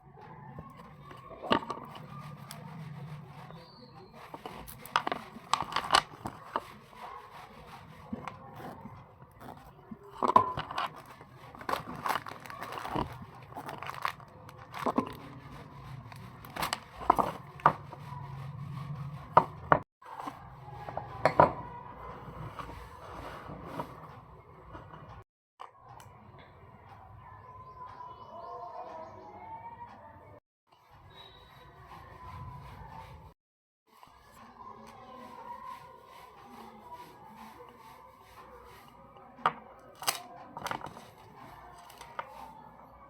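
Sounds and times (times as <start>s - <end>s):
packaging crinkling and rustling: 10.2s - 17.7s, 40.0s - 42.2s.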